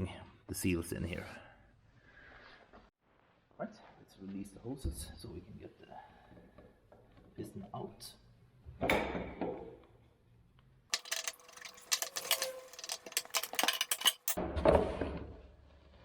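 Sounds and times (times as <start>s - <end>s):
metal fittings and tools clinking: 10.9s - 14.4s.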